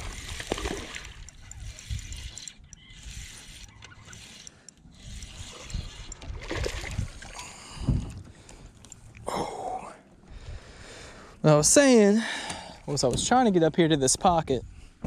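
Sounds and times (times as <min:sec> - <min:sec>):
water splashing: 0:00.0 - 0:01.3
fishing reel clicking whir: 0:00.0 - 0:07.1
wind on microphone: 0:05.0 - 0:08.3.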